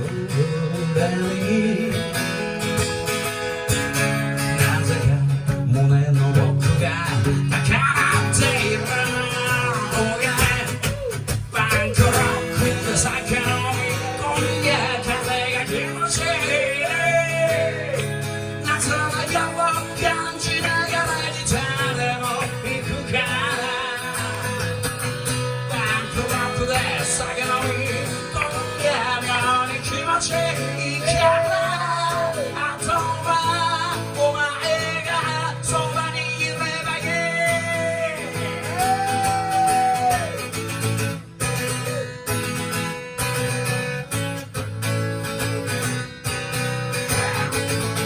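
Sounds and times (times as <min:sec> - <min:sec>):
bass line: 0:00.0 - 0:42.3
strummed guitar: 0:00.0 - 0:48.0
live rock band playing: 0:02.1 - 0:48.0
person singing: 0:04.6 - 0:40.4.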